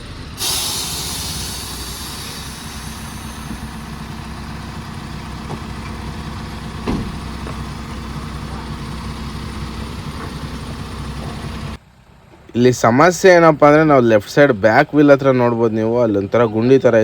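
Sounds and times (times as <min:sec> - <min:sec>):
truck diesel engine running: 0:00.0 - 0:12.4.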